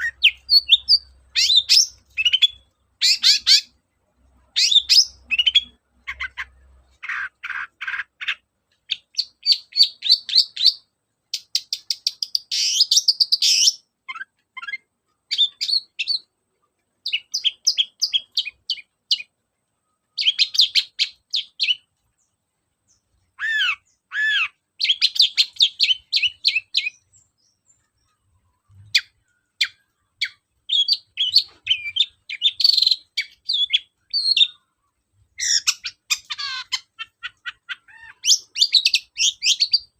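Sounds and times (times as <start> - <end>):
bird singing chattering notes: 0.0 - 3.7, 20.2 - 39.9.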